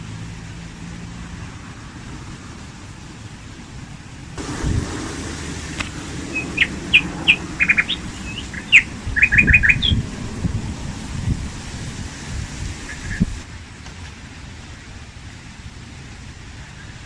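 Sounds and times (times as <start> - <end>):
steady low rumble: 1.6 - 13.5
small bird chirping: 5.7 - 10.1.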